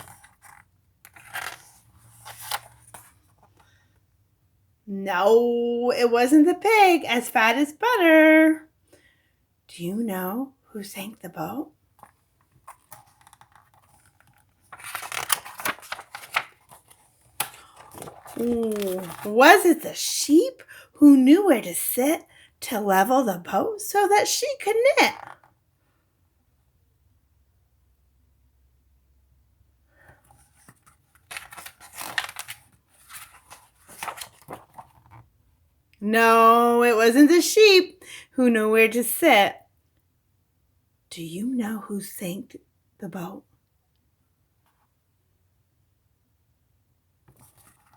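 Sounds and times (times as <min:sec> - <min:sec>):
paper rustling of pages turned: 0:00.0 - 0:03.9, 0:11.9 - 0:19.8, 0:25.1 - 0:25.6, 0:30.0 - 0:35.4, 0:47.2 - 0:47.9
faint ticks of page handling: 0:12.0 - 0:19.3, 0:30.4 - 0:35.2.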